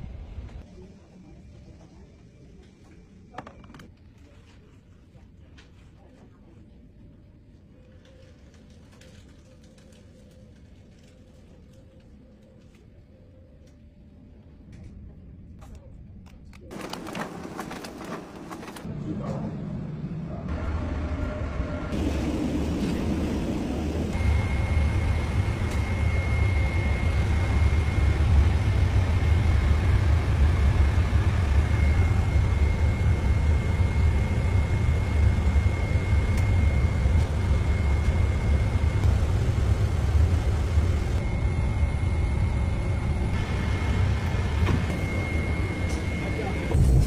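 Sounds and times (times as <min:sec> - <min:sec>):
faint high whine: 0:19.6 - 0:47.0.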